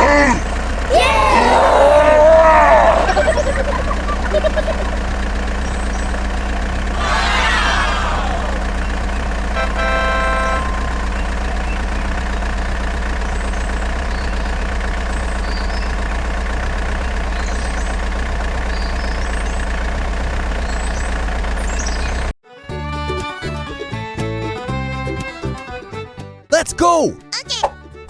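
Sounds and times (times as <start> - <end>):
vehicle engine droning: 0.0 - 26.4
brief horn-like tone: 9.6 - 11.6
faint bird chirps: 13.2 - 16.0, 18.6 - 19.7.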